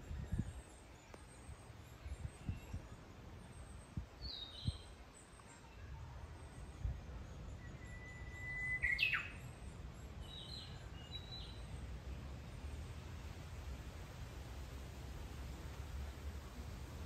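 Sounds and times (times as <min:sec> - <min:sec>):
warbler song whistle and flourish: 0:07.4 - 0:11.8.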